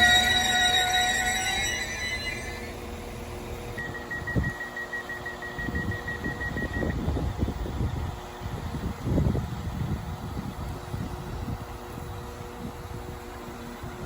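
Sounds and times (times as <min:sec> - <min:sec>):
rapid electronic warning beeping: 0:00.0 - 0:07.0.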